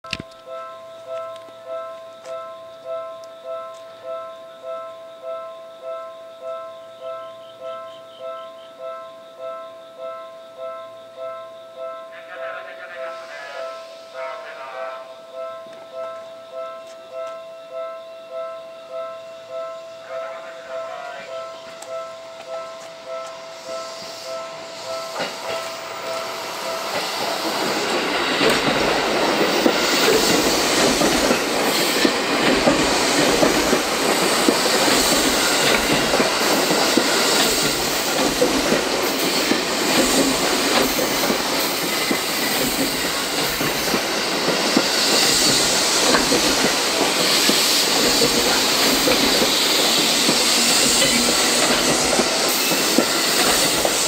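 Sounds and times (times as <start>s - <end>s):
level crossing alarm tones: 0.0s - 44.7s
train wheels clattering over rail joints: 26.8s - 54.0s.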